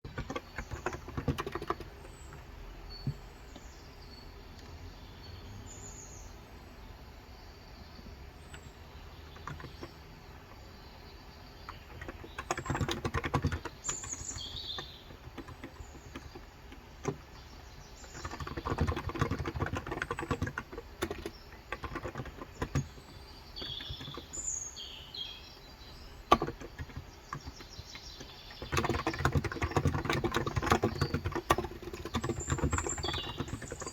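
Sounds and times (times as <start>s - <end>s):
birds chirping: 0.0s - 33.9s
rapid keyboard typing: 0.1s - 3.2s, 8.5s - 10.1s, 11.7s - 24.4s, 26.2s - 33.9s.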